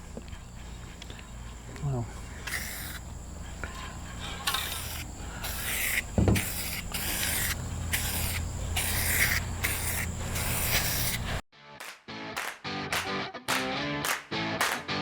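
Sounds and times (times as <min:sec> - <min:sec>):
spray can hissing bursts: 0:02.4 - 0:03.0, 0:04.4 - 0:11.4
knock: 0:06.2 - 0:06.5.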